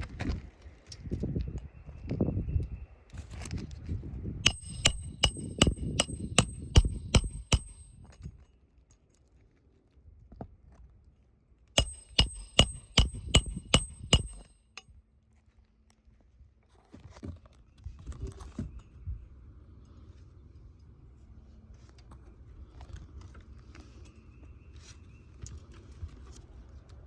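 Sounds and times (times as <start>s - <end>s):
hammer striking roofing nails: 4.5s - 7.9s, 11.8s - 14.5s.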